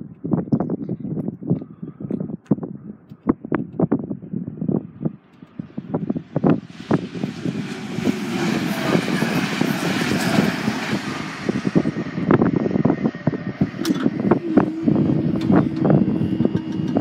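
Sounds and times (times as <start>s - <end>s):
train rumbling: 5.4s - 17.0s
steady hum: 11.1s - 17.0s.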